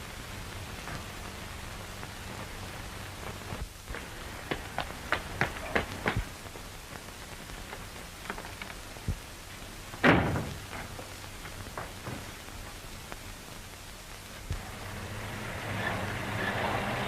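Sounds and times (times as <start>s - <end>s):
film soundtrack hiss: 0.0s - 17.0s
loud thump: 10.0s - 10.7s.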